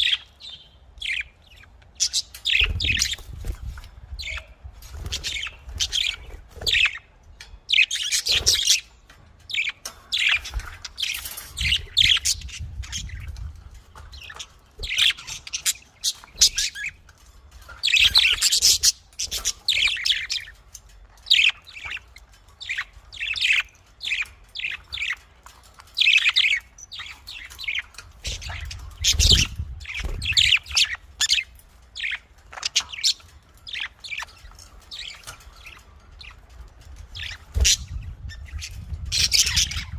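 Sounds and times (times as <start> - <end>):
budgerigars chirping: 14.0 - 17.0, 21.3 - 36.5, 37.1 - 39.9.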